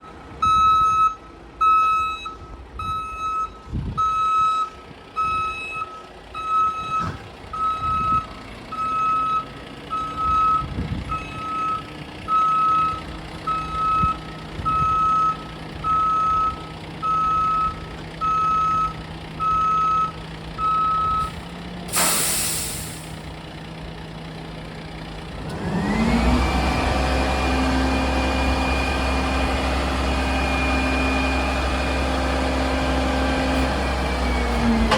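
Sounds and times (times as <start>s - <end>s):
truck engine: 0.0s - 34.9s
reversing alarm beeping: 0.4s - 21.4s
loud air hiss: 21.9s - 23.2s.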